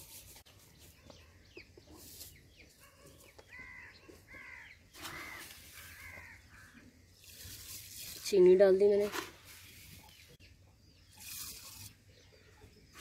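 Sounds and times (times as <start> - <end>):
birds calling: 0.4 - 7.6.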